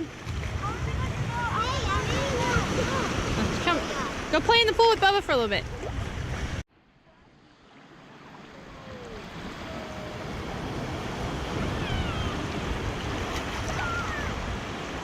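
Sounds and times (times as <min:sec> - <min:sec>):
wind on microphone: 0:00.0 - 0:04.4, 0:08.8 - 0:15.0
ocean surf washing: 0:00.0 - 0:15.0.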